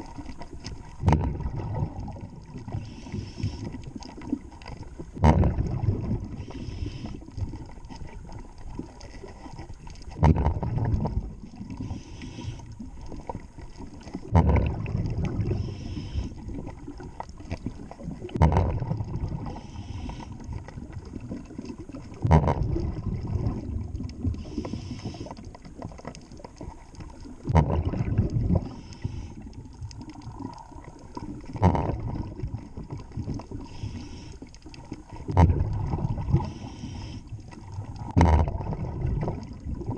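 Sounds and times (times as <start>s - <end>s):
exhaled bubbles rushing: 0.0s - 39.9s
diver breathing through regulator: 2.7s - 3.9s, 6.3s - 7.4s, 11.7s - 12.8s, 15.4s - 16.6s, 19.3s - 20.6s, 24.3s - 25.5s, 28.5s - 29.6s, 33.6s - 34.6s, 36.2s - 37.6s.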